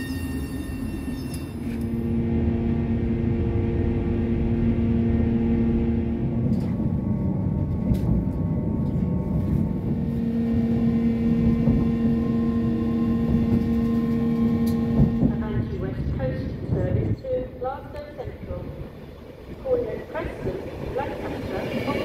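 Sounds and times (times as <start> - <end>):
train running rumble: 0.0 - 22.0.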